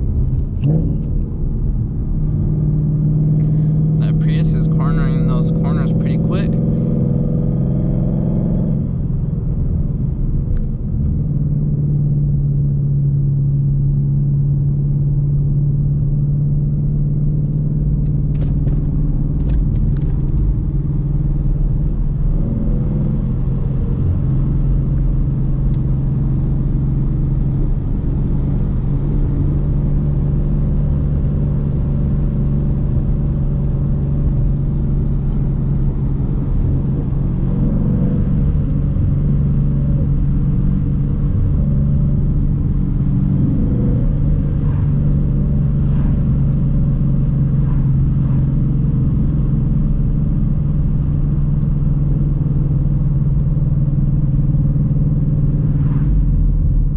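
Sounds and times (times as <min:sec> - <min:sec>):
car engine and exhaust running: 0:00.0 - 0:56.9
low road rumble: 0:00.0 - 0:56.9.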